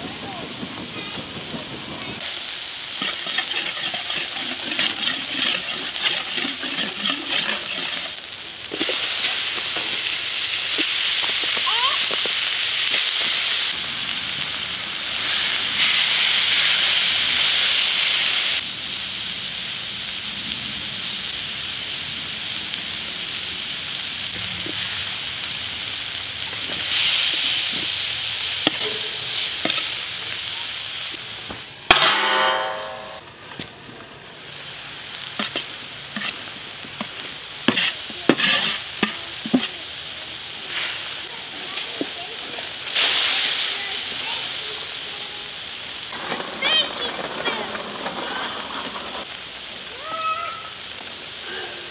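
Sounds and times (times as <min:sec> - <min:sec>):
meat and vegetables sizzling: 0:00.0 - 0:51.9
metal spatula scraping steel: 0:02.9 - 0:08.2, 0:28.8 - 0:30.0, 0:35.4 - 0:39.7.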